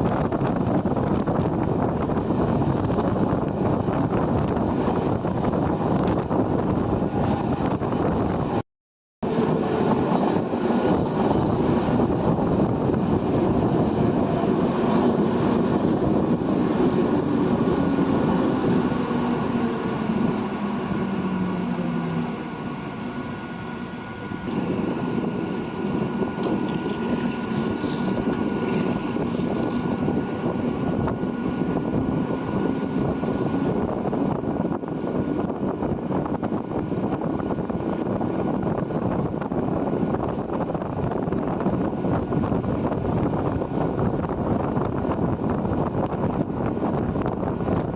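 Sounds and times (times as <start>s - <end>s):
train wheels rumbling on rails: 0.0s - 8.6s, 9.2s - 47.9s.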